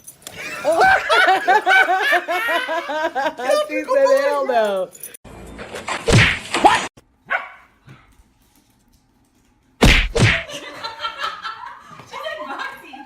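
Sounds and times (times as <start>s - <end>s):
dog barking: 7.2s - 7.8s.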